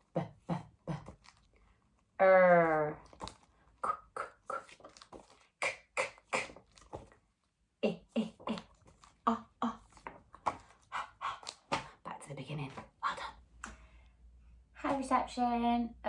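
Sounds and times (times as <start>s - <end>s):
woman making letter sounds: 0.0s - 1.4s, 2.2s - 7.0s, 7.8s - 13.5s.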